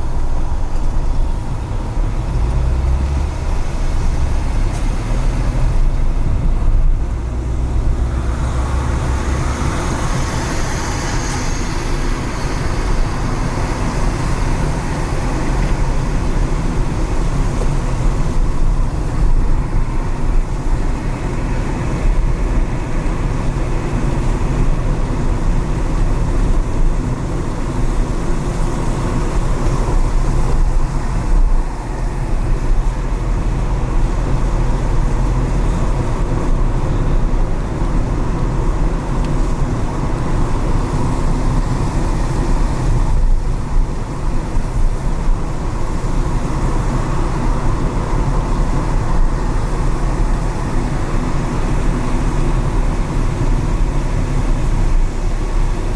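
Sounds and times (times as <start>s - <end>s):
car engine and road noise: 0.0s - 55.9s
passing traffic: 0.0s - 55.9s
tyre hiss on wet road: 7.2s - 19.3s.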